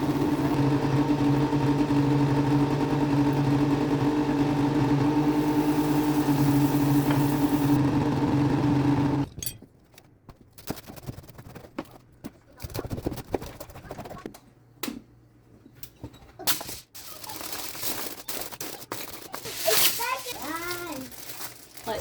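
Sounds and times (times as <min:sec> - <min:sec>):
motor hum: 0:00.0 - 0:09.3.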